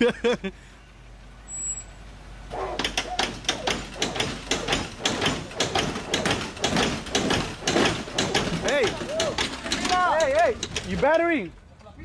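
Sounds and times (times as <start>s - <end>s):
rapid sharp taps and knocks: 2.8s - 11.0s.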